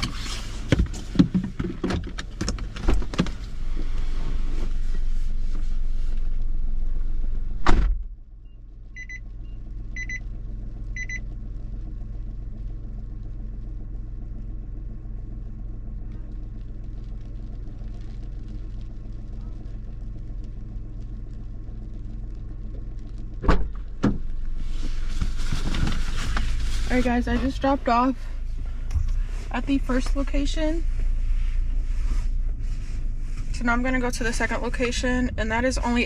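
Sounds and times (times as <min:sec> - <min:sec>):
car engine idling: 0:00.0 - 0:36.0
car door slamming: 0:07.6 - 0:08.1, 0:23.4 - 0:24.3
car warning chime beeping: 0:08.4 - 0:10.2, 0:11.0 - 0:11.2.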